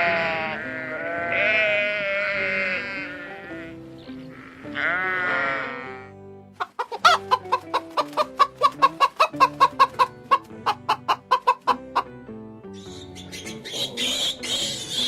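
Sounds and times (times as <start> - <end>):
background music: 0.0 - 15.0
chicken clucking: 6.6 - 12.1.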